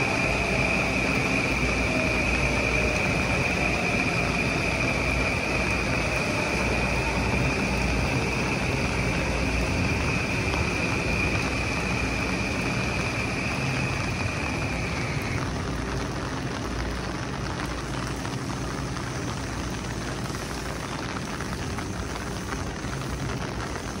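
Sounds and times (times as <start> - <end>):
electric train running: 0.0 - 15.6
steady high whine: 0.0 - 23.9
heavy rain pouring: 0.0 - 24.0.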